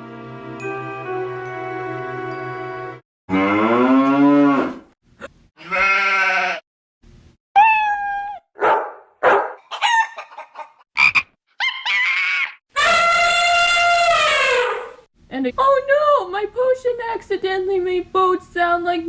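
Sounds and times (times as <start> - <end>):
cartoon animal calls: 7.6 - 8.5, 11.0 - 15.0.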